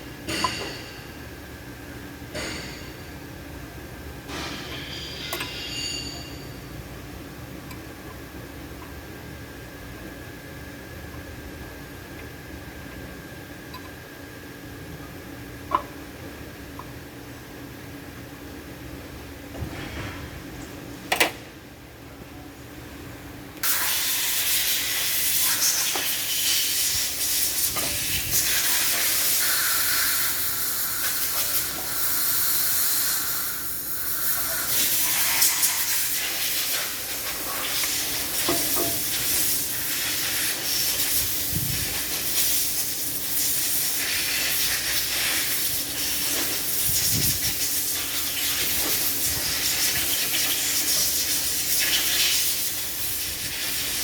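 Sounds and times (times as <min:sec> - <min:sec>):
pressurised jet hissing: 0:28.1 - 0:36.8.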